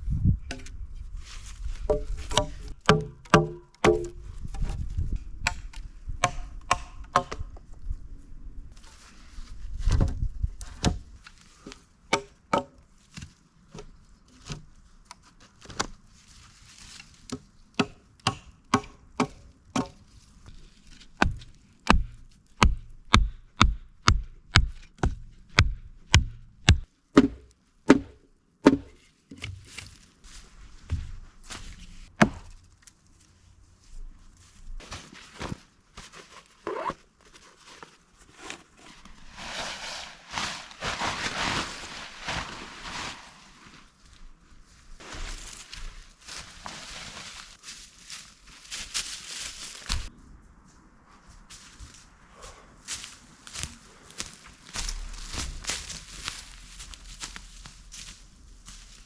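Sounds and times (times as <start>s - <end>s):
wood chopping strikes: 1.9s - 4.2s, 5.4s - 7.5s, 17.3s - 20.0s, 21.2s - 29.6s, 32.2s - 32.5s, 54.8s - 56.5s.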